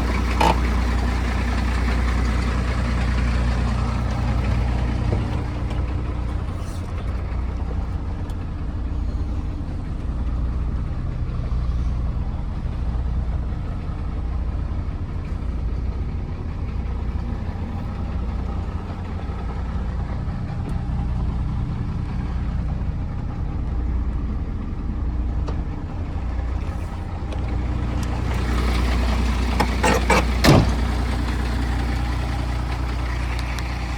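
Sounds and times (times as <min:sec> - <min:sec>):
truck diesel engine droning: 0:00.0 - 0:33.9.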